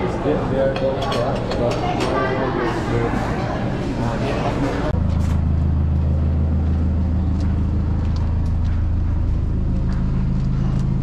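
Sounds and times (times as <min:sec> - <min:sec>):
car engine idling: 0:04.9 - 0:11.0.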